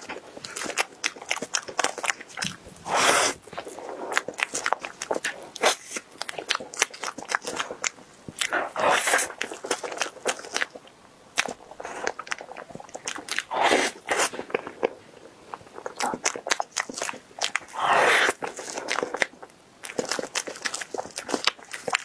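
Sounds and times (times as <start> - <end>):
chewing soft cake: 0.0 - 22.0
loud noisy mouth sounds: 2.4 - 3.4, 17.7 - 18.4.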